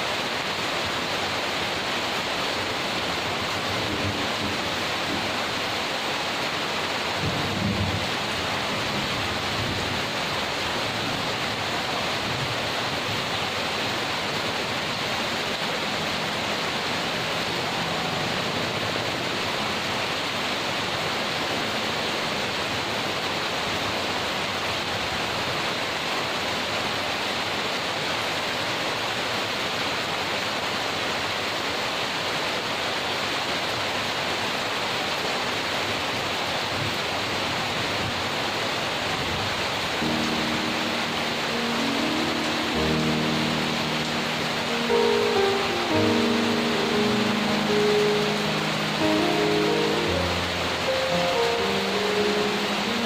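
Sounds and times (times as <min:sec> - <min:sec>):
heavy rain hissing: 0:00.0 - 0:53.0
distant thunder rumble: 0:07.2 - 0:10.3.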